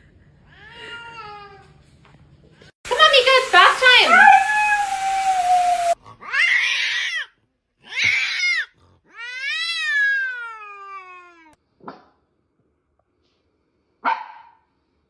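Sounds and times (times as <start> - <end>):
cat meowing loudly: 7.9 - 11.6.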